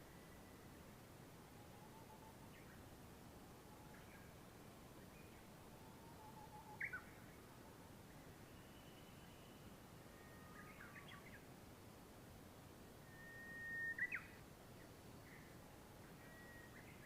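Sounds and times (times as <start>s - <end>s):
steady background hiss: 0.0s - 17.0s
birdsong whistles and chirps: 5.0s - 7.4s, 8.4s - 11.5s, 13.0s - 17.0s.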